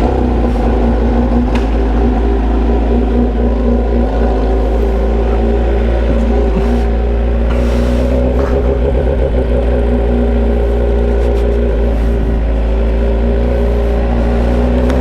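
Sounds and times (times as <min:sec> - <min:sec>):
motorcycle engine idling loudly: 0:00.0 - 0:15.0.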